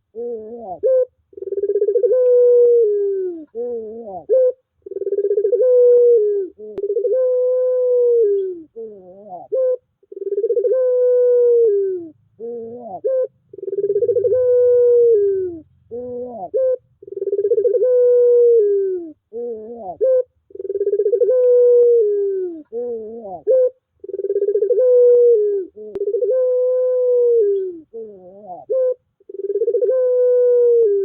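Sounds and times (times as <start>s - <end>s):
dove cooing: 0.0s - 31.0s.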